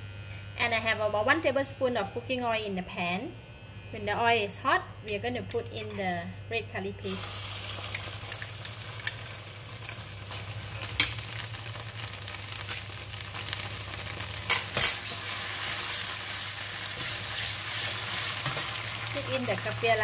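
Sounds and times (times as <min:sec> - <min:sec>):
curry paste sizzling in oil: 0:07.1 - 0:20.0
metal utensils clinking: 0:14.5 - 0:15.0.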